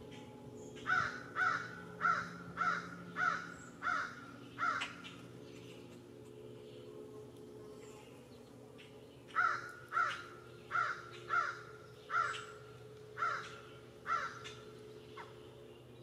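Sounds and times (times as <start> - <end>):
low steady hum: 0.0 - 16.0
bird cawing harshly: 0.9 - 5.1, 9.4 - 12.6, 13.2 - 14.6.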